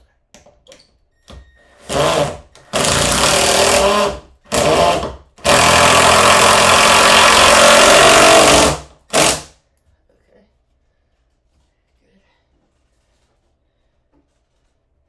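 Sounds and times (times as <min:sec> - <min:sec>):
power drill driving screw into wood: 0:01.8 - 0:09.5.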